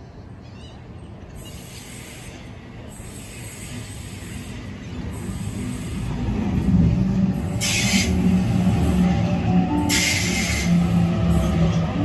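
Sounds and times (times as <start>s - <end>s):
train wheels rumbling on rail: 1.1s - 12.0s
train hiss: 1.3s - 9.0s, 9.8s - 11.6s.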